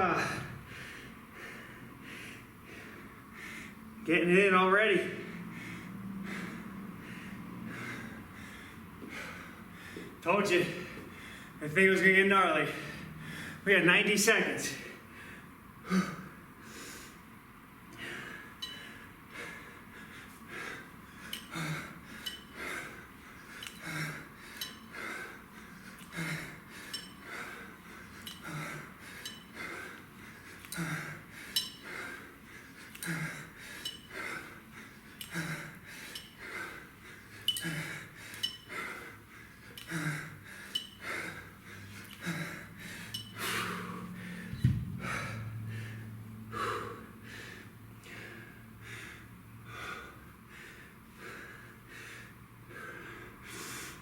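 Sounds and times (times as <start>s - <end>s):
man breathing hard: 0.0s - 4.0s, 4.9s - 13.7s, 14.6s - 54.0s
sharp thump: 44.6s - 45.1s.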